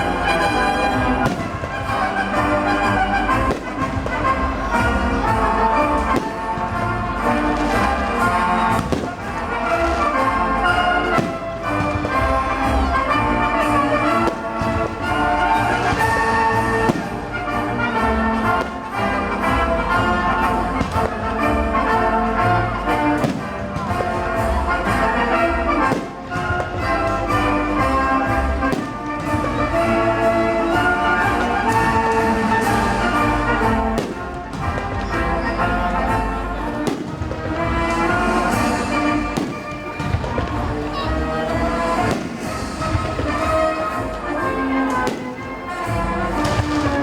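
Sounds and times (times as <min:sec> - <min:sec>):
orchestral brass music: 0:00.0 - 0:47.0.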